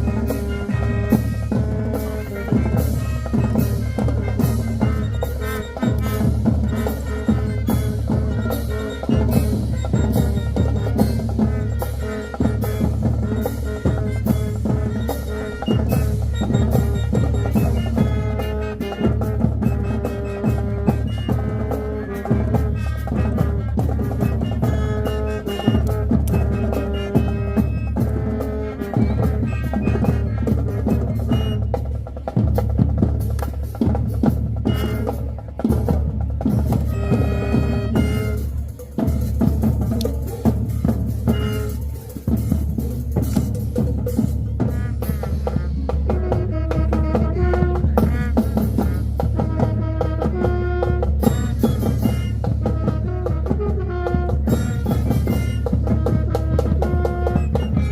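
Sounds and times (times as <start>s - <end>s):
bass drums beating: 0.0s - 57.9s
marching band playing: 0.0s - 57.9s.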